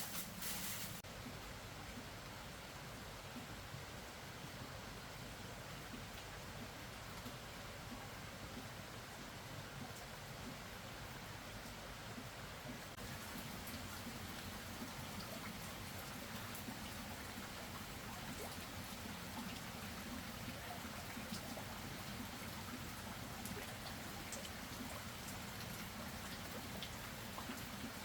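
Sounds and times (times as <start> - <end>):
steady rain falling: 0.0 - 28.0
faint drip ticks: 5.7 - 8.8, 9.8 - 28.0.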